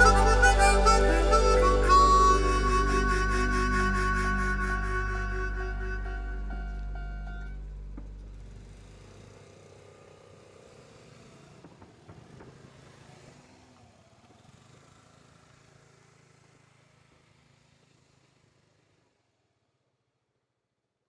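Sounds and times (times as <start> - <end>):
train clatters: 11.6 - 13.1.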